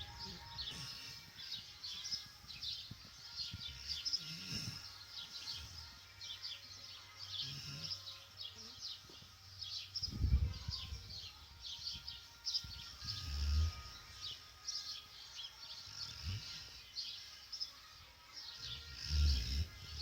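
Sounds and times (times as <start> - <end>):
birds chirping: 0.0 - 20.0
dog snoring: 3.6 - 5.9, 7.3 - 8.2, 15.8 - 16.9, 18.6 - 20.0.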